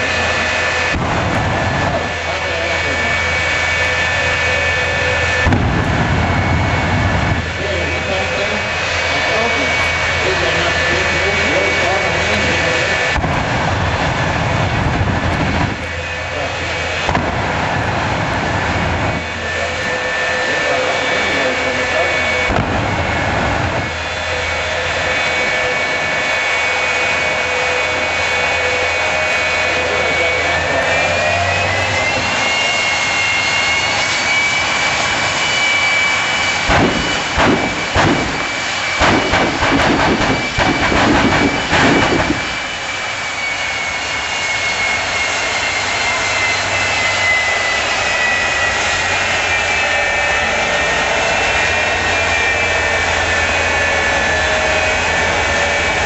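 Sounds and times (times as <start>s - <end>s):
turbine engine whining: 0.0s - 56.0s
rapid loud bangs: 36.6s - 42.5s.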